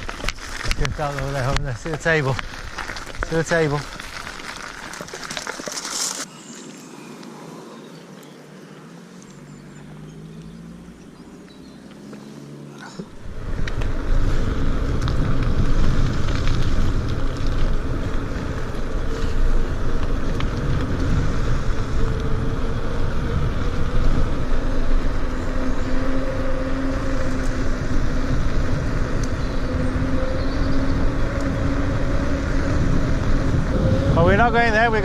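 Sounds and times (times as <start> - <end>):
wind buffeting microphone: 0.0 - 4.5, 13.1 - 35.0
bicycle tyre and road noise: 0.0 - 35.0.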